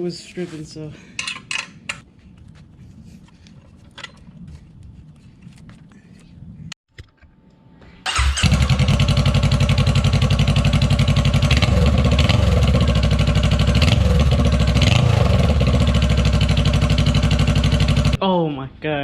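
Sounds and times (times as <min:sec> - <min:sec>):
motorcycle engine idling: 0:08.4 - 0:18.2.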